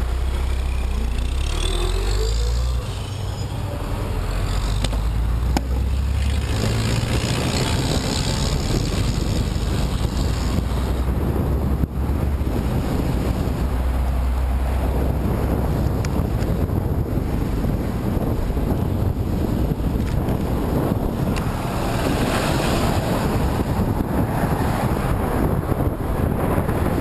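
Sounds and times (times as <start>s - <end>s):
road traffic passing: 0.0s - 27.0s
wind buffeting microphone: 0.0s - 27.0s.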